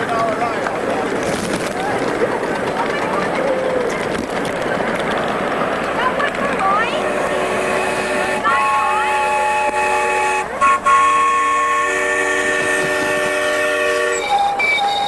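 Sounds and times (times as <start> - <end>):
train whistles blowing in chords: 7.0 - 15.0.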